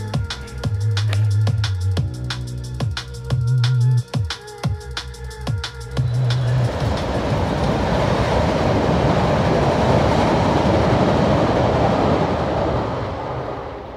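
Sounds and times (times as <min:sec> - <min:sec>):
train wheels rumbling on rails: 0:04.8 - 0:13.9.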